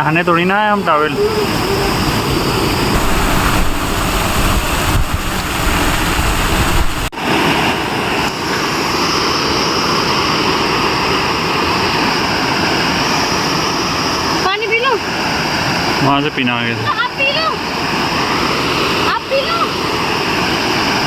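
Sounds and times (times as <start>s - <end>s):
waterfall rushing: 0.3s - 21.0s
heavy low rumble: 1.1s - 7.1s.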